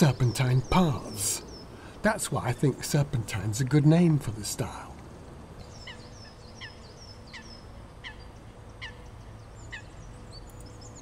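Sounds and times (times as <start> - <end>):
faint outdoor hum: 0.0 - 11.0
bird calling: 5.6 - 11.0.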